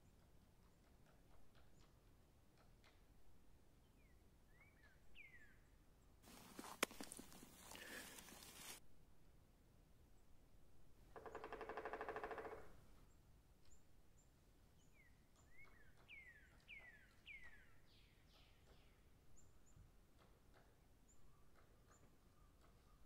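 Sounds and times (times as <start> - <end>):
thin high bird chips: 6.3 - 8.8.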